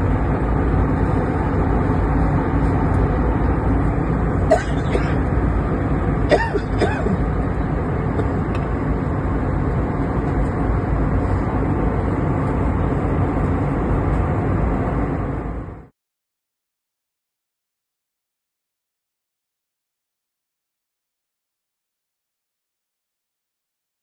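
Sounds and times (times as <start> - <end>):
airliner cabin noise: 0.0 - 15.9.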